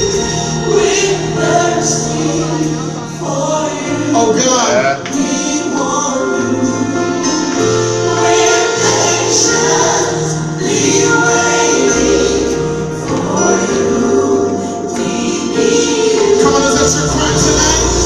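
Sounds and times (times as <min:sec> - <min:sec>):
choir singing held chords: 0:00.0 - 0:18.0
keyboard backing: 0:00.0 - 0:18.0
deep bass note: 0:16.5 - 0:18.0.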